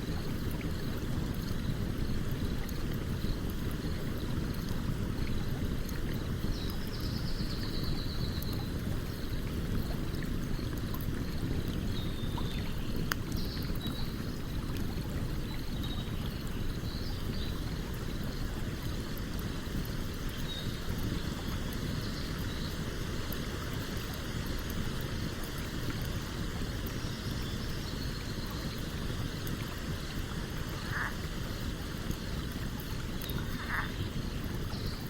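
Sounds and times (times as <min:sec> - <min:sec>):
stream water rushing: 0:08.7 - 0:35.0.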